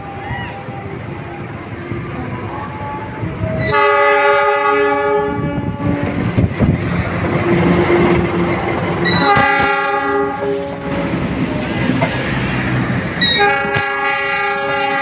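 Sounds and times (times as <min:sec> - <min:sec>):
train wheels rumbling on rails: 0:00.0 - 0:15.0
locomotive horn blast: 0:02.5 - 0:06.2, 0:09.0 - 0:11.3, 0:13.2 - 0:15.0.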